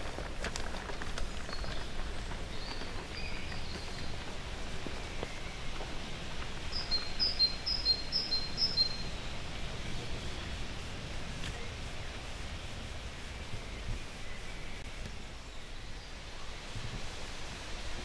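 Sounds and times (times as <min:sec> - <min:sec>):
outdoor background noise: 0:00.0 - 0:18.0
songbird singing: 0:00.0 - 0:18.0.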